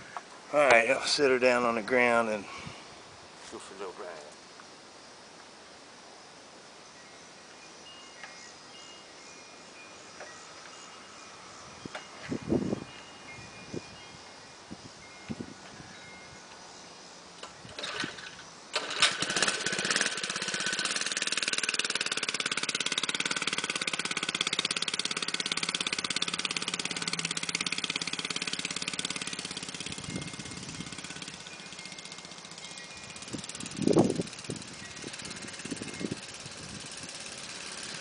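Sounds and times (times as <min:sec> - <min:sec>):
small engine starting and running: 0:17.4 - 0:38.0.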